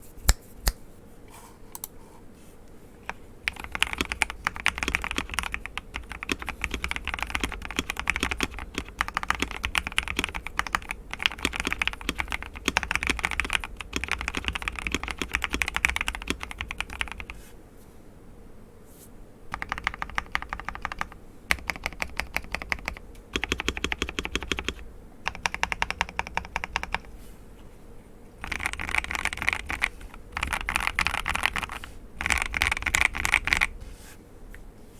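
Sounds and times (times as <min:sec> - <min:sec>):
typing on mechanical keyboard: 0:03.4 - 0:17.4, 0:19.5 - 0:27.1, 0:28.4 - 0:33.7.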